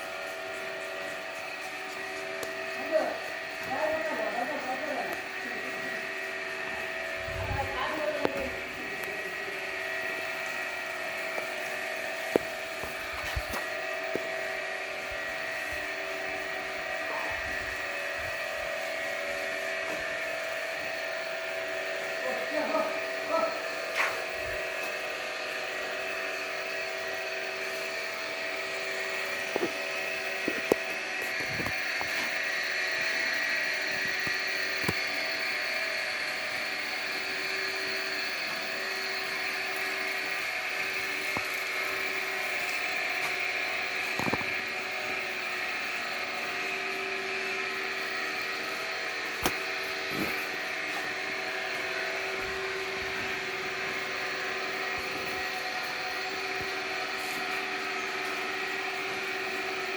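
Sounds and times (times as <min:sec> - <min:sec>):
machine whining drone: 0:00.0 - 0:59.9.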